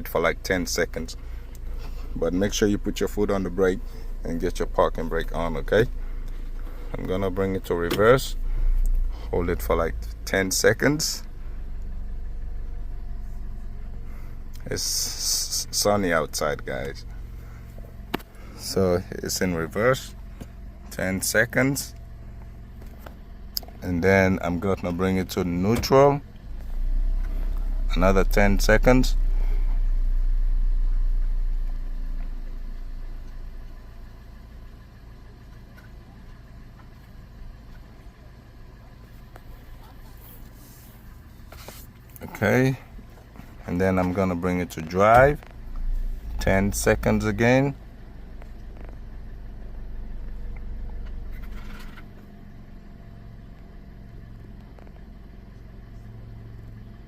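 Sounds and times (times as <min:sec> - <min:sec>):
car engine idling: 0:00.0 - 0:57.0
short scraping clatter: 0:51.2 - 0:52.1.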